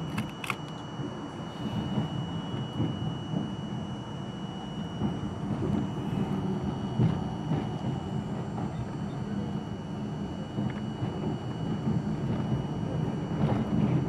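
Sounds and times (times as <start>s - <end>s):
high-pitched whine: 0.0s - 14.0s
subway train rumbling: 0.0s - 14.0s.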